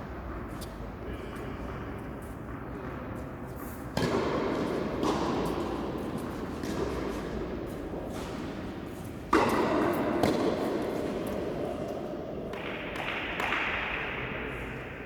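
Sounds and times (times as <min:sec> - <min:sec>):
tennis ball hit by racket: 0:04.0 - 0:07.4, 0:09.3 - 0:11.6.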